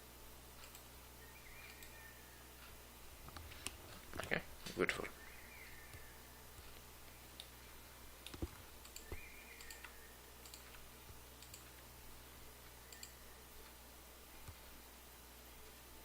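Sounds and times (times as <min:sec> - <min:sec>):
steady low hum: 0:00.0 - 0:16.0
computer mouse clicks: 0:00.6 - 0:00.9, 0:01.6 - 0:02.0, 0:05.8 - 0:07.6, 0:08.2 - 0:11.9, 0:12.6 - 0:13.8.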